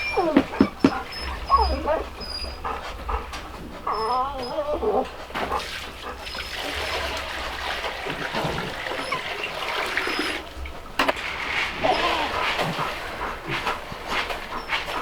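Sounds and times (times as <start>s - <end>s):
piglet squealing: 0.0s - 2.7s, 3.9s - 5.1s, 11.8s - 12.4s
rustling: 10.1s - 15.0s.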